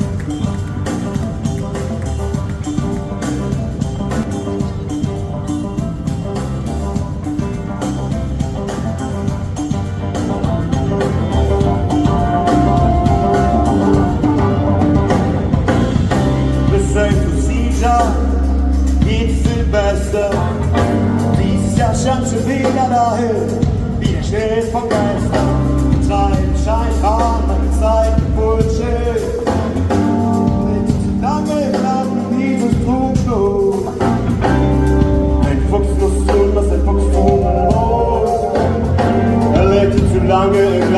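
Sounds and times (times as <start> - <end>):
drum hits: 0.0 - 27.2, 32.7 - 40.9
gliding lead guitar melody: 0.0 - 40.9
rock band playing live: 0.0 - 40.9
person singing: 10.8 - 40.9.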